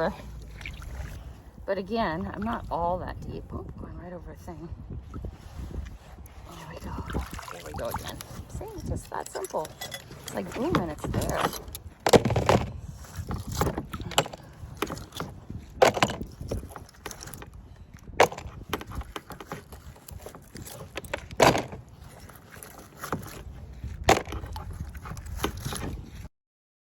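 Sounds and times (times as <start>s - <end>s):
paddle knocks and splashes on hull: 5.0s - 8.8s, 10.1s - 26.2s.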